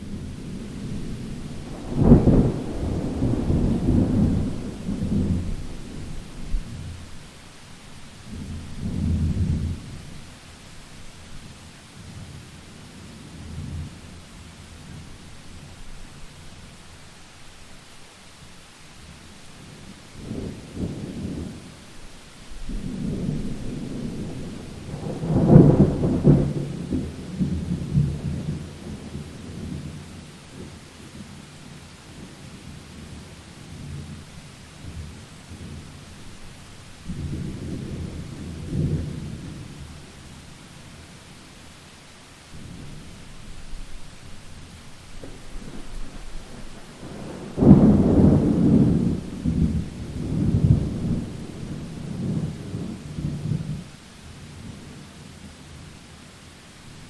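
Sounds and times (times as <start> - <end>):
thunder rumbling: 0.0 - 7.2, 22.6 - 30.8, 34.8 - 40.1, 42.6 - 53.9
rain hissing: 0.0 - 57.0
thunder crack: 1.0 - 6.7, 22.7 - 28.5, 45.2 - 53.8.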